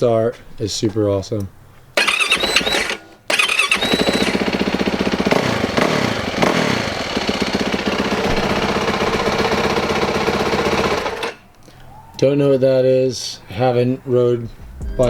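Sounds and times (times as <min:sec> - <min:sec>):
motorcycle engine revving and idling: 0:02.0 - 0:11.4
electric starter: 0:02.0 - 0:11.5.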